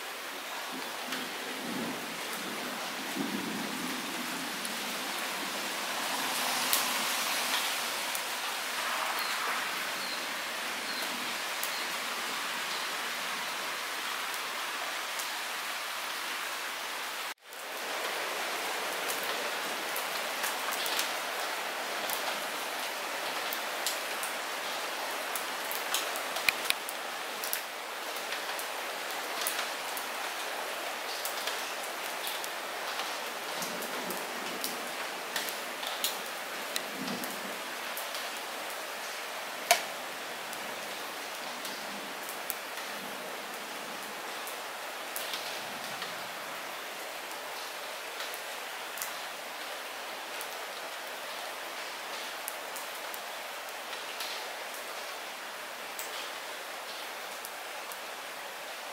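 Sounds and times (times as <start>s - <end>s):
light rain hissing: 0.0s - 58.9s
sharp raindrop ticks: 25.7s - 28.7s, 39.6s - 40.0s.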